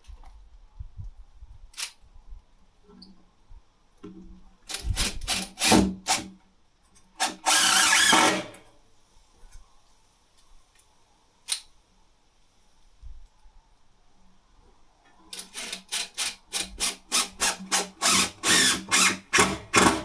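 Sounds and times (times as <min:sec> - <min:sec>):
power drill drilling wood: 0:07.2 - 0:08.5, 0:15.6 - 0:20.0.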